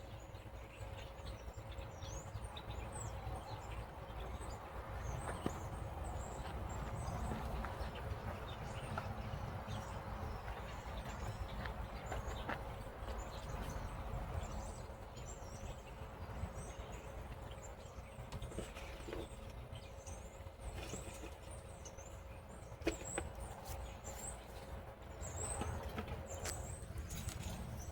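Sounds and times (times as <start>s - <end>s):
low steady rumble: 0.0s - 27.9s
small birds chirping: 0.0s - 27.9s.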